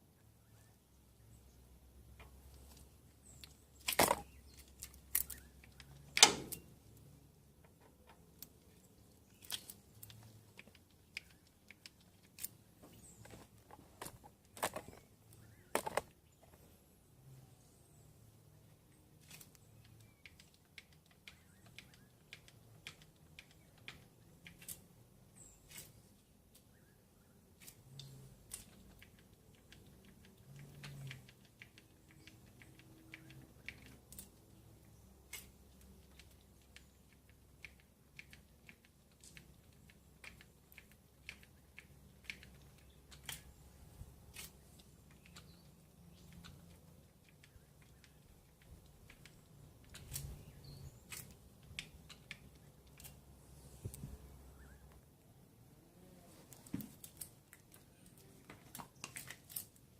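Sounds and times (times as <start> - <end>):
sharp clicks: 3.4 - 6.7, 7.6 - 12.6, 19.2 - 24.8, 35.2 - 43.7, 44.3 - 53.2.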